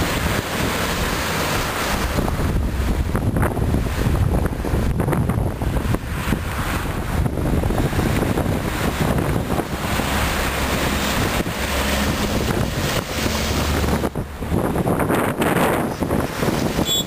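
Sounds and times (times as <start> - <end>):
low engine rumble: 0.0 - 17.0
wind buffeting microphone: 0.0 - 17.0.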